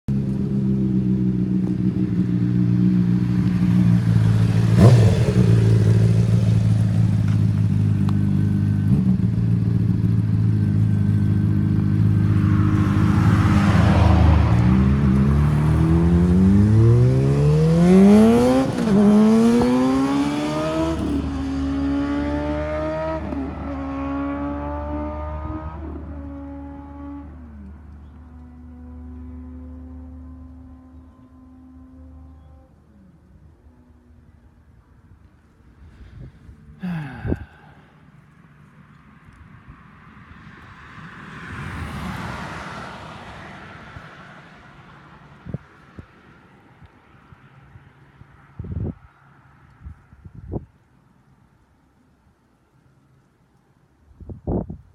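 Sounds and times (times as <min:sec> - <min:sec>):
motorcycle engine accelerating: 0:00.1 - 0:33.4.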